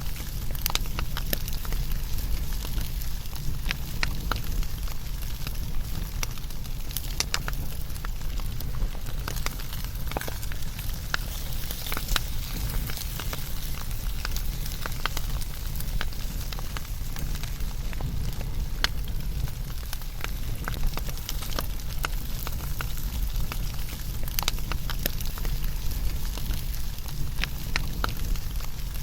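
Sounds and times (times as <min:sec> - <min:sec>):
fire crackles and pops: 0:00.0 - 0:29.0
fire low rumble: 0:00.0 - 0:29.0.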